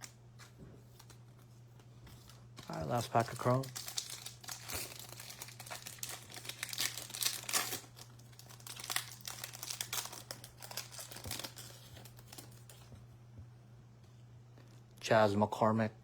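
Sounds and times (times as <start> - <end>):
foil wrapper tearing and crinkling: 2.2 - 12.8.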